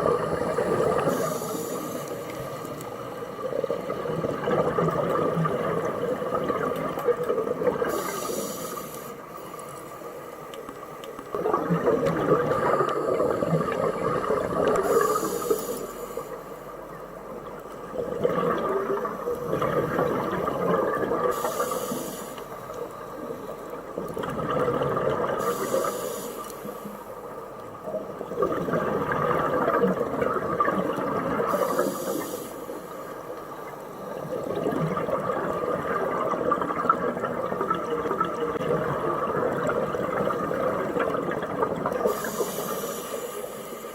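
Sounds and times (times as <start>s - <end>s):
exhaled bubbles rushing: 0.0s - 1.6s, 3.4s - 8.4s, 11.3s - 15.5s, 17.5s - 21.5s, 23.8s - 25.6s, 27.9s - 31.9s, 34.1s - 42.4s
scuba regulator breathing hiss: 0.8s - 2.8s, 7.8s - 9.6s, 14.6s - 16.6s, 21.3s - 22.6s, 25.4s - 27.1s, 31.5s - 33.1s, 42.0s - 43.9s.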